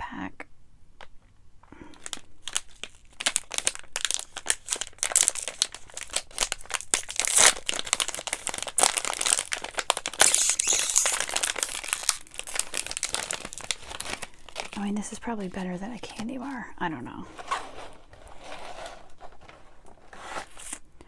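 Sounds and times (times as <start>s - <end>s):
plastic wrapper crinkling: 1.8s - 16.7s, 17.3s - 20.9s.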